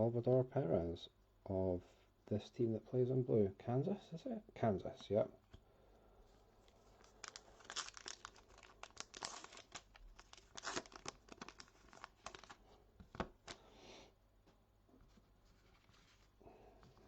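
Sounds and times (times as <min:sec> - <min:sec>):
plastic foil wrapper crinkling: 0:06.5 - 0:13.6.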